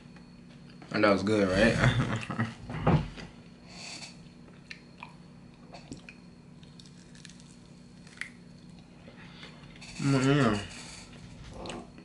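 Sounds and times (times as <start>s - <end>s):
chewing with wet clicks: 4.5s - 8.9s.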